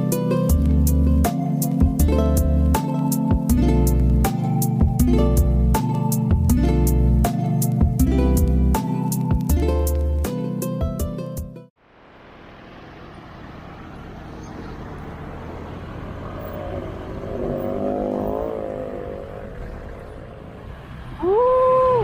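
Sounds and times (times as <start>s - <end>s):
road traffic noise: 0.0s - 22.0s
vehicle passing close: 11.8s - 22.0s.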